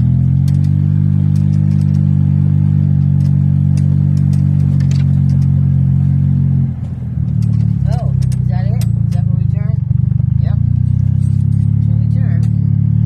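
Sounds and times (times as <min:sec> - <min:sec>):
golf cart motor humming: 0:00.0 - 0:13.0
light clicks and rattles: 0:03.0 - 0:05.6, 0:06.8 - 0:09.7.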